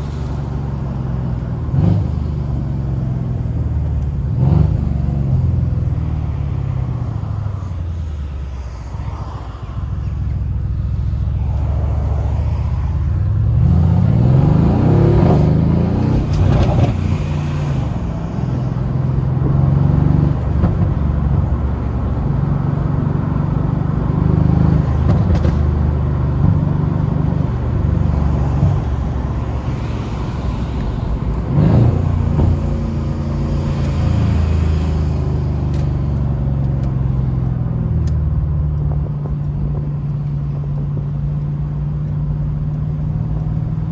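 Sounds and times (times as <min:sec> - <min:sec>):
car engine accelerating: 0:00.0 - 0:43.9.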